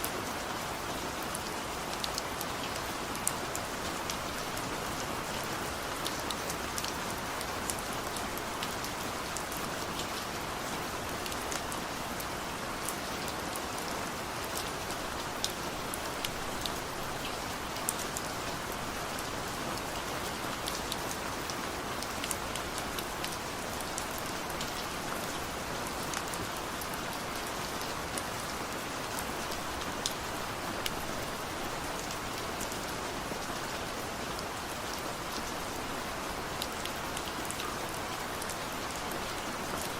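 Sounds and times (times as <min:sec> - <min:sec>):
steady rain hiss: 0:00.0 - 0:39.9
raindrops ticking on a surface: 0:01.1 - 0:39.9.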